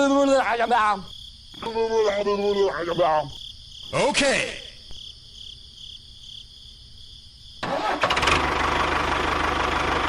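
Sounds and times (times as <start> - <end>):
crickets chirping: 0.0 - 8.0
small engine running: 7.6 - 10.0.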